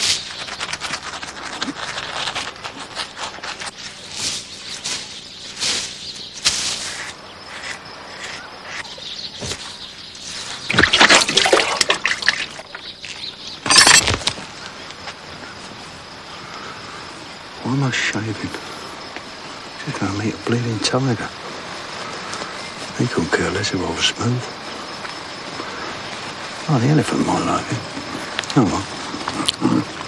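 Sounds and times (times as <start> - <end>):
faint jungle birdsong: 0.0 - 30.0
water splashing and sloshing: 9.4 - 14.4.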